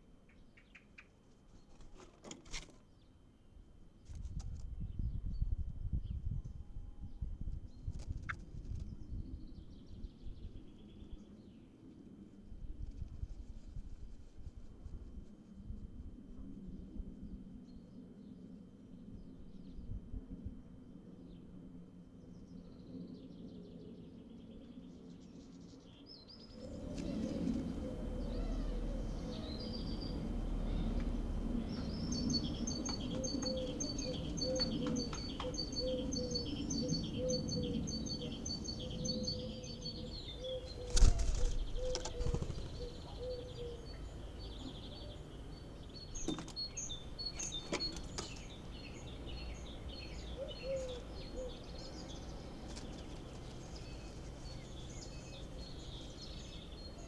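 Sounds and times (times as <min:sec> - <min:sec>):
birds chirping: 0:26.4 - 0:57.0.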